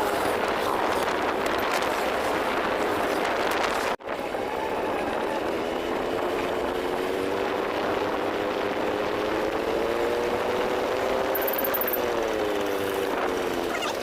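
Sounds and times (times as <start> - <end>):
road and wind noise: 0.0 - 14.0
vehicle engine running: 4.8 - 14.0.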